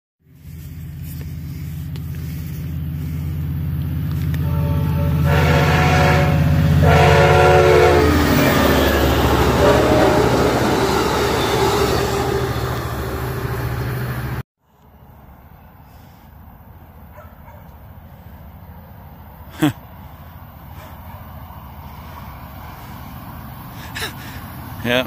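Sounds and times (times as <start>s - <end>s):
diesel locomotive engine drone: 0.2s - 25.0s
train wheels rumbling on rails: 0.4s - 14.4s
train horn blasts: 4.2s - 12.7s.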